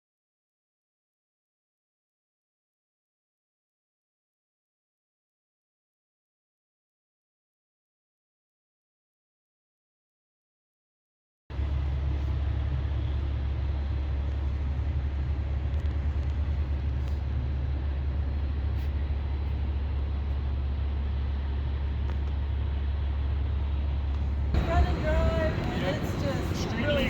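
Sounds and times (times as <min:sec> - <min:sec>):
diesel engine deep rumble: 0:11.5 - 0:27.0.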